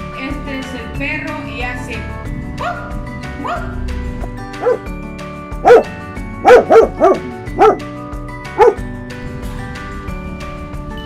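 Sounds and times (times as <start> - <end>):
background music: 0.0 - 11.0
dog barking: 2.5 - 3.8, 4.6 - 4.9, 5.6 - 7.9, 8.6 - 8.8.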